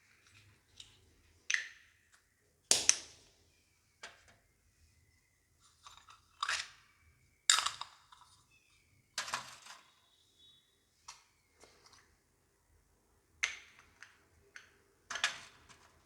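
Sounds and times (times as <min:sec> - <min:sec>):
toy kitchen pieces clacking: 0:05.8 - 0:06.9, 0:07.5 - 0:08.5, 0:09.2 - 0:10.0, 0:13.4 - 0:16.0.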